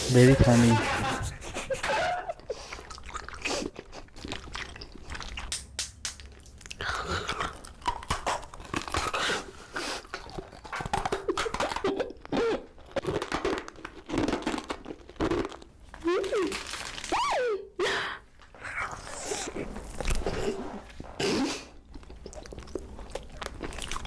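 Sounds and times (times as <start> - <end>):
person chewing crunchy food: 2.4 - 17.1, 18.3 - 24.0.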